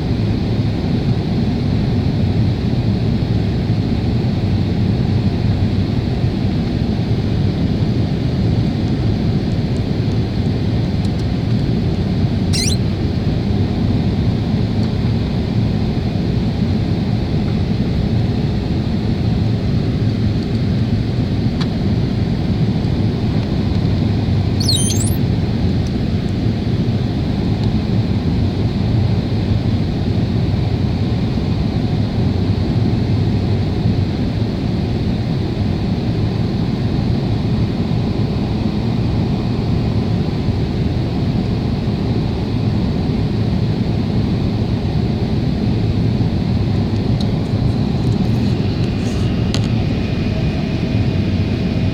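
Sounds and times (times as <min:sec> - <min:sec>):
jet engine cabin noise: 0:11.8 - 0:13.2, 0:24.6 - 0:25.2, 0:46.3 - 0:51.9.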